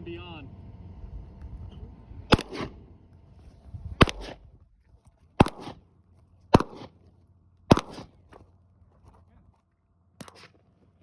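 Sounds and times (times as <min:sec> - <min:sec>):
rifle gunshots: 0:02.3 - 0:02.9, 0:04.0 - 0:04.4, 0:05.4 - 0:05.8, 0:06.5 - 0:07.0, 0:07.7 - 0:08.2.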